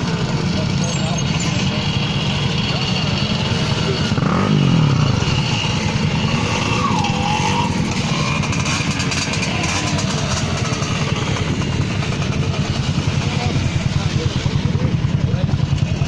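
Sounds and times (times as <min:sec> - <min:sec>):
moped engine puttering: 0:00.0 - 0:16.0.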